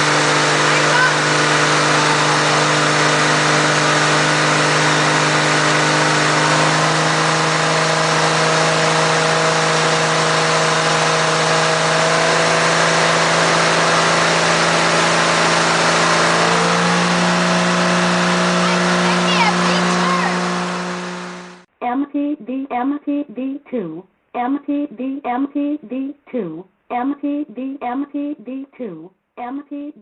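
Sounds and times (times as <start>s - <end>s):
motorboat engine running: 0.0s - 21.7s.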